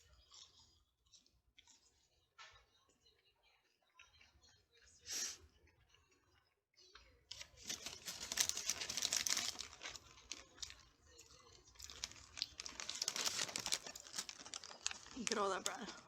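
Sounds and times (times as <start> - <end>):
paper wrapper crinkling: 7.3 - 16.0.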